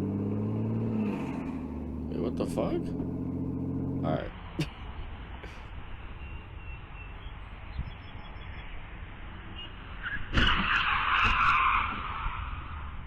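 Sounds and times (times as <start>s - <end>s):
road noise: 0.0s - 13.0s
tyres skidding: 9.8s - 13.0s.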